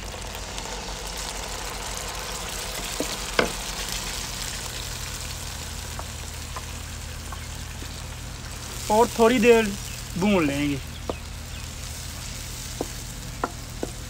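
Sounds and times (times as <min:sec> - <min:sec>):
onions sizzling in ghee: 0:00.0 - 0:14.0
wooden spoon knocking pan: 0:02.9 - 0:03.6, 0:11.0 - 0:11.3, 0:12.7 - 0:14.0.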